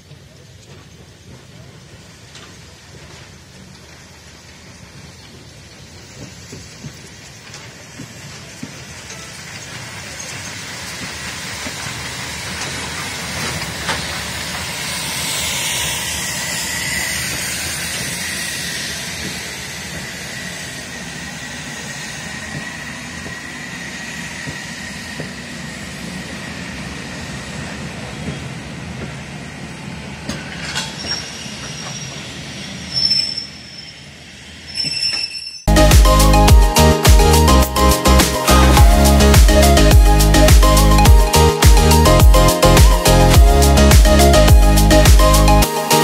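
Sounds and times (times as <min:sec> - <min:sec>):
train wheels rolling over rails: 0:00.0 - 0:35.4
high-pitched wheel squeal: 0:14.6 - 0:26.8, 0:30.6 - 0:35.7.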